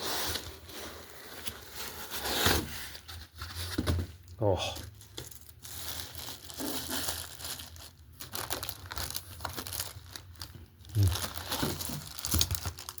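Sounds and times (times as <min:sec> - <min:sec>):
plastic packaging crinkling: 0:04.8 - 0:13.0.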